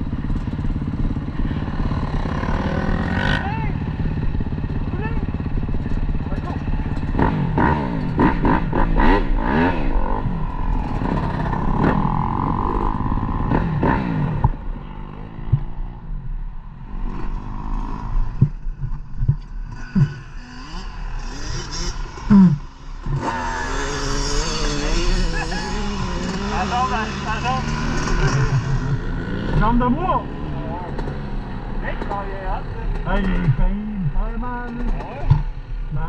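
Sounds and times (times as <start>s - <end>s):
dirt bike engine revving: 0.0s - 16.1s, 16.8s - 36.0s
knocks and clatter: 30.8s - 31.2s, 34.6s - 35.6s.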